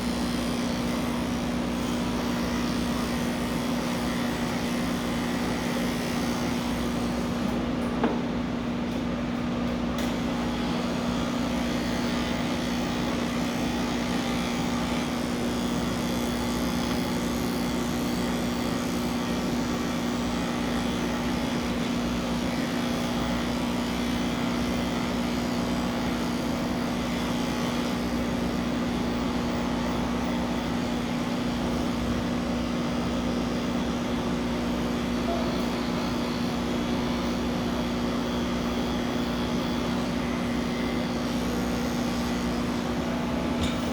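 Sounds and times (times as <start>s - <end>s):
electric hair clippers humming: 0.0s - 8.2s, 10.0s - 43.9s.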